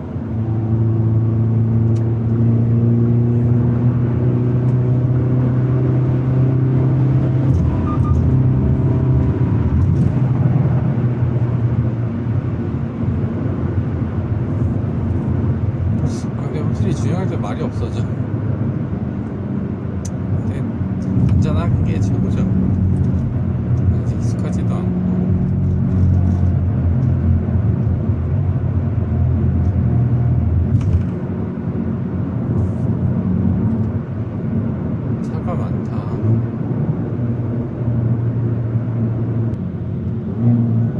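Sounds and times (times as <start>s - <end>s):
car engine and exhaust: 0.0s - 40.9s
road rumble: 0.0s - 40.9s.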